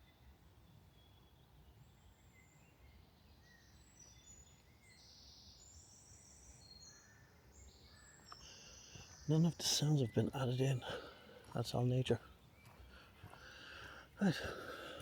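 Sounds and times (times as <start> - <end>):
birds chirping and whistling: 3.4 - 11.5, 12.2 - 15.0.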